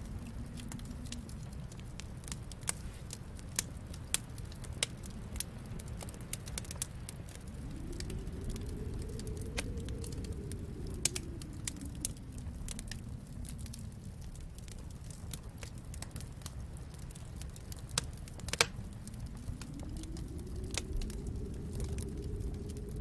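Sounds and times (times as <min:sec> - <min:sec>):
low rumble: 0:00.0 - 0:23.0
wood fire crackling: 0:00.0 - 0:23.0.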